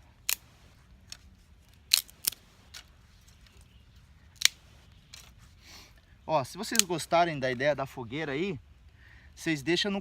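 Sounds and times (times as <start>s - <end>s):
dry twigs snapping: 0.2s - 3.5s, 6.6s - 7.1s.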